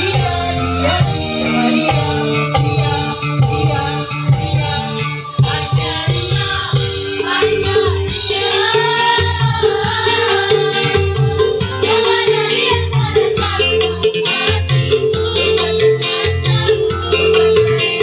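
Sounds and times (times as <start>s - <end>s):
pulsing bass beat: 0.0s - 13.6s
choir singing: 0.0s - 14.6s
instrumental accompaniment: 0.0s - 18.0s.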